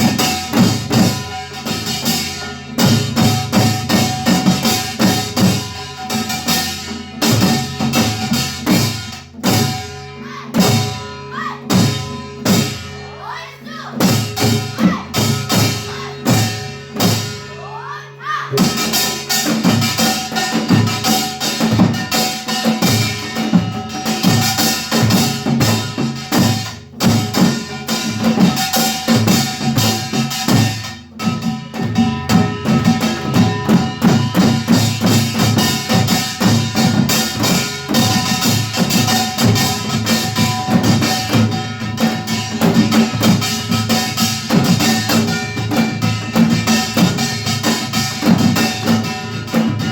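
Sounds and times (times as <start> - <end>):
percussion ensemble drumming: 0.0 - 49.9.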